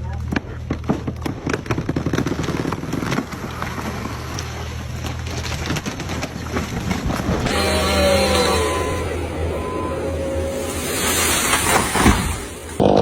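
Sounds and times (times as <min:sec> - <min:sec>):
engine running steadily: 0:03.8 - 0:12.8.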